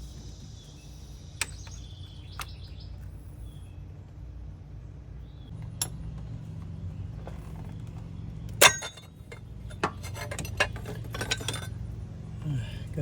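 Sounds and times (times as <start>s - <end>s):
steady low hum: 0.0s - 13.0s
metal tools clicking and clinking: 8.6s - 11.8s.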